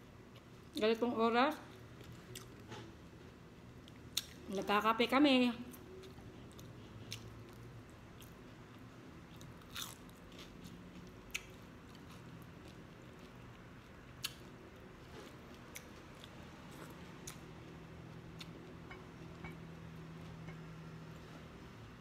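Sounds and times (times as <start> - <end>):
person chewing: 1.7 - 2.9, 5.7 - 19.5.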